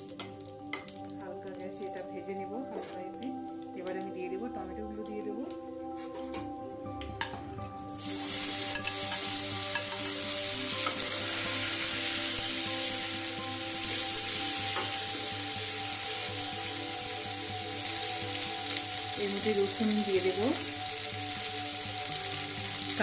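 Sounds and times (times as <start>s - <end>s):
food sizzling in hot oil: 7.8s - 23.0s.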